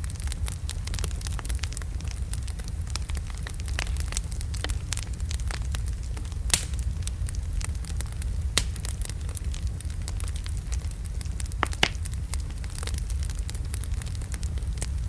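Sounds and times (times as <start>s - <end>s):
fire rumbling: 0.0s - 15.0s
wood crackling and popping: 0.0s - 15.0s.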